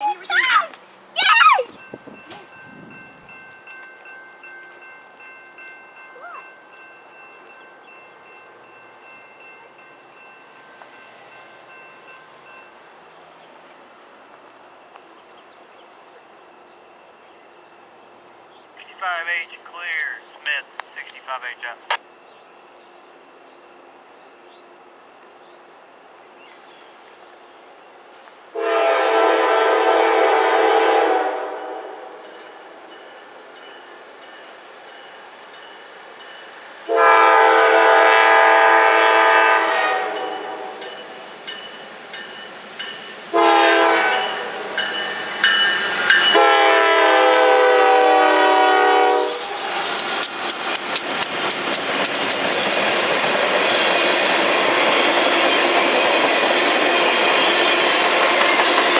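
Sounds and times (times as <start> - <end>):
locomotive air horn blast: 28.6 - 32.2, 36.9 - 40.8, 43.3 - 44.8, 46.2 - 49.6
train wheels clicking over rail joints: 49.3 - 58.9.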